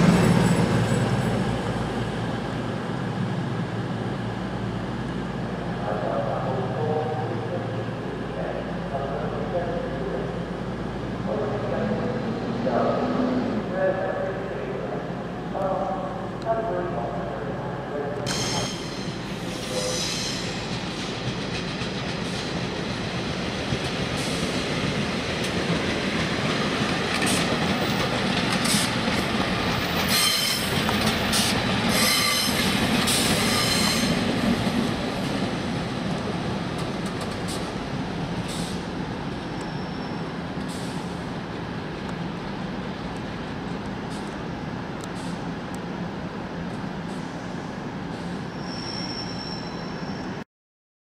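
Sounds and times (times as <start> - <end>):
train wheels squealing and clattering: 18.3 - 22.7, 27.1 - 34.3, 39.5 - 41.1, 48.2 - 50.4.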